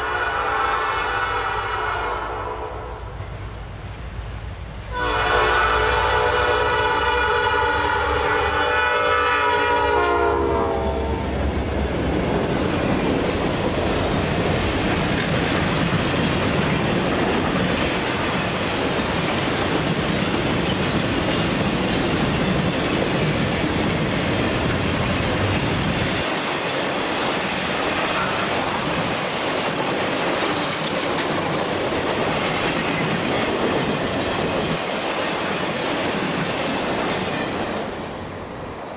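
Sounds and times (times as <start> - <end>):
locomotive horn: 0.0 - 2.8, 4.9 - 11.4
train wheels clattering on rails: 11.3 - 38.9.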